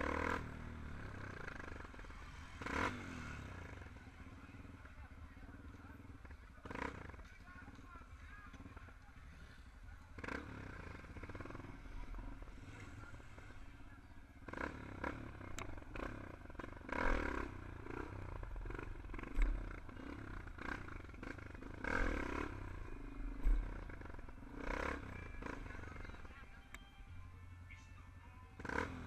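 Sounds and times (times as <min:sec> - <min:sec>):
motorcycle engines revving: 0:00.0 - 0:29.0.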